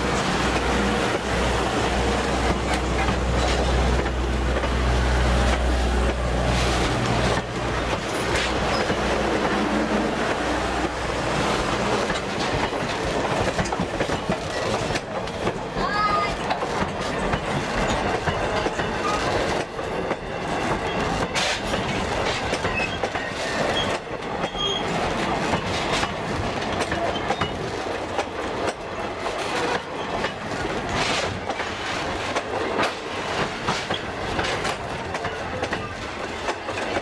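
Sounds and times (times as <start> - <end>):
train cars rolling past: 0.0 - 37.0
wheels clicking over rail joints: 2.1 - 37.0
high wheel squeals: 22.7 - 24.9.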